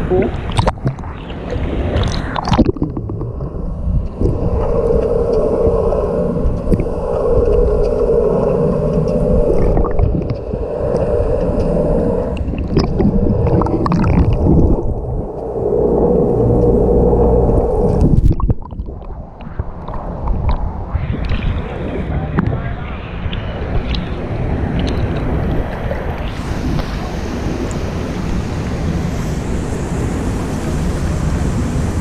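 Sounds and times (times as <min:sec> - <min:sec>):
water splashing: 0:00.0 - 0:22.0
muffled water sloshing: 0:00.0 - 0:22.1
sharp clicks underwater: 0:00.3 - 0:05.5, 0:06.5 - 0:15.5, 0:17.5 - 0:21.5, 0:23.3 - 0:25.7.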